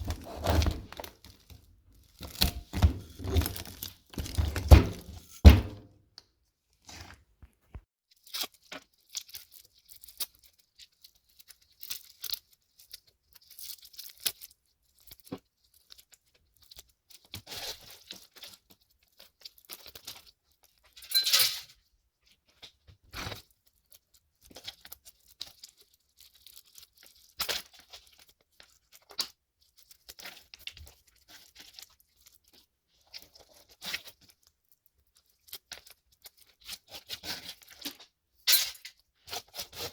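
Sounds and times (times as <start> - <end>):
scraping and tearing metal parts: 0.0 - 5.8, 36.6 - 39.9.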